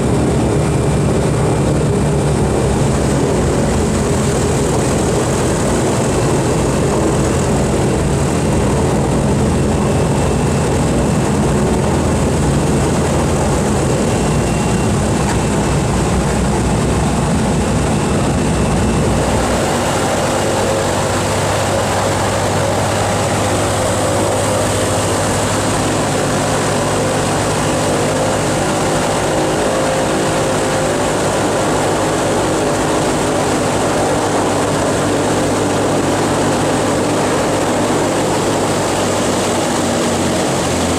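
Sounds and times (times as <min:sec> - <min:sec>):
propeller aircraft engines running: 0:00.0 - 0:40.9.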